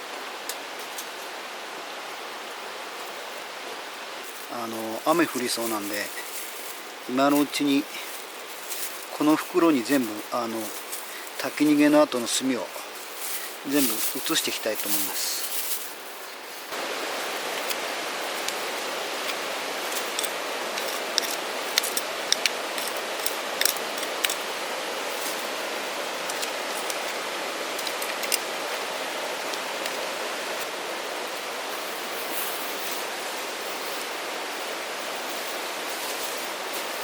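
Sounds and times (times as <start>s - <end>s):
steady rushing noise: 0.0s - 37.0s
charcoal lumps clicking and clinking: 4.3s - 30.7s.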